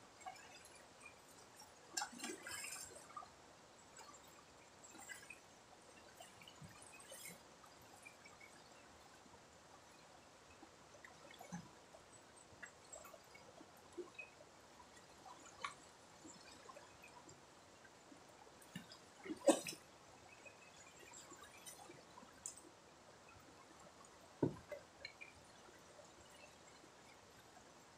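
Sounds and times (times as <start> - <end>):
water dripping and trickling: 0.0 - 27.9
small water plops: 1.9 - 3.3, 12.6 - 22.7.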